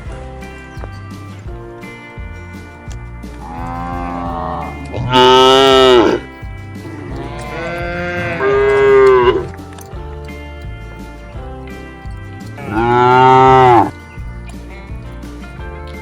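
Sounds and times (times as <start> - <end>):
cattle mooing: 3.3 - 9.7, 12.6 - 14.0.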